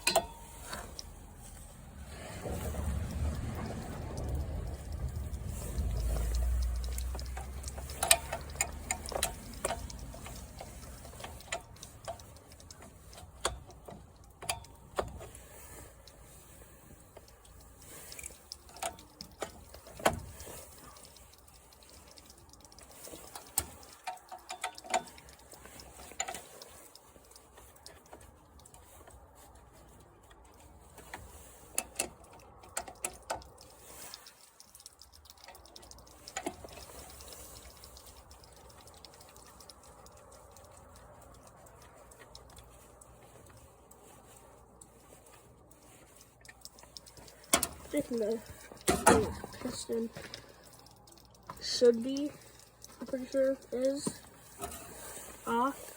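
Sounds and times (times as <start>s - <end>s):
hand tools clicking and clinking: 0.0s - 1.8s, 2.7s - 15.4s, 17.1s - 29.3s, 44.6s - 55.9s.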